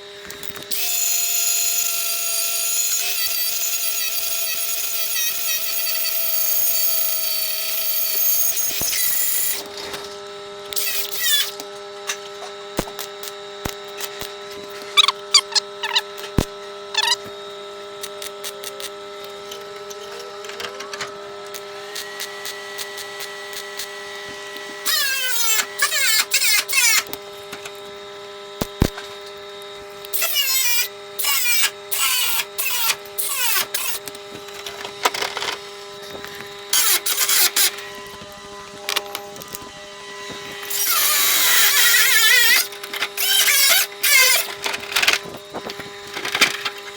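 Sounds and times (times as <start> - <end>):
harsh metalworking bursts: 14.9 - 17.3, 36.3 - 38.0
sharp clicks: 15.0 - 16.0.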